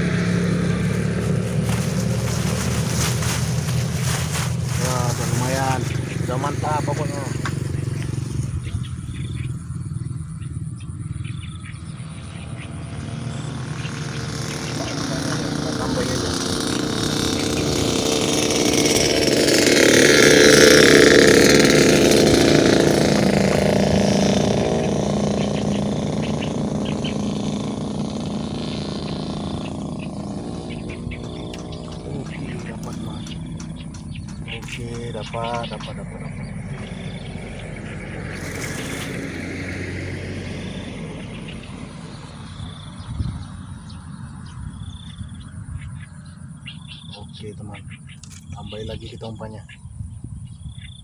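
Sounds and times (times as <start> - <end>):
small engine running: 0.0 - 49.5.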